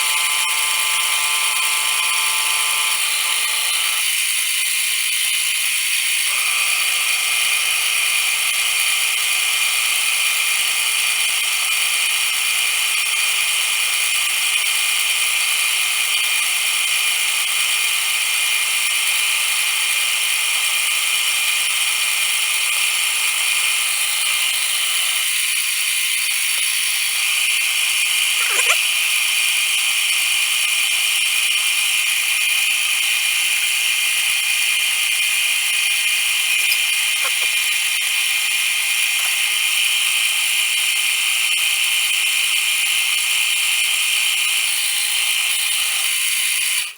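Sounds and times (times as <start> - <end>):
metal lathe cutting: 0.0 - 46.9.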